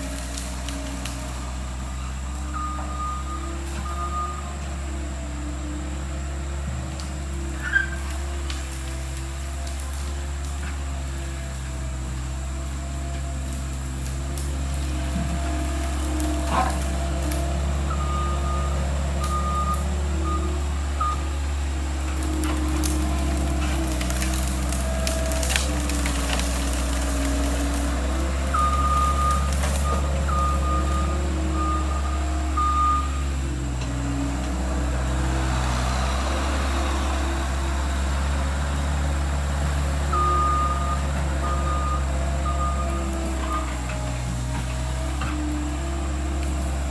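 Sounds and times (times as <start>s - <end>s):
skid steer engine running: 0.0s - 46.9s
backup alarm beeping: 17.0s - 21.5s, 27.2s - 33.3s, 40.1s - 43.8s.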